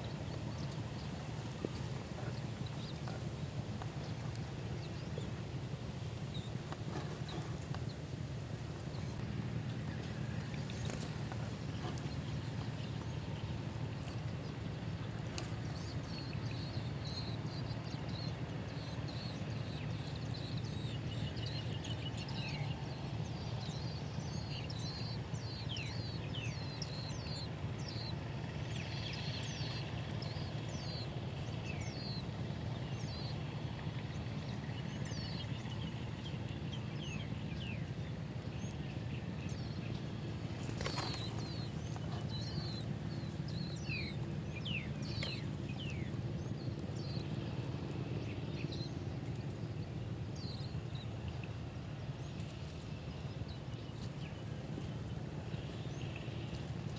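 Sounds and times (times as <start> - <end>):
small birds chirping: 8.8 - 37.9, 38.6 - 56.9.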